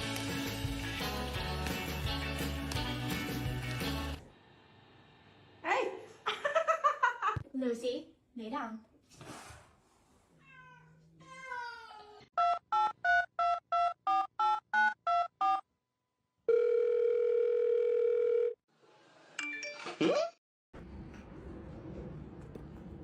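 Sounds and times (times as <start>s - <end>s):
telephone ringing tone: 16.5s - 18.6s.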